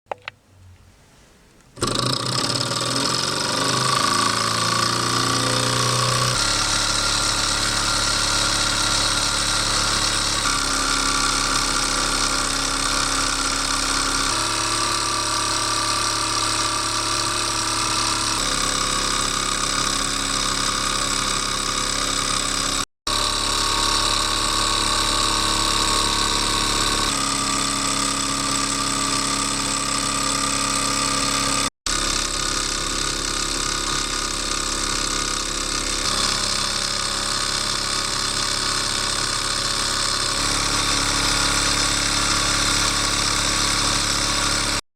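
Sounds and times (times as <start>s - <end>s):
stirling engine whirring: 1.8s - 11.5s.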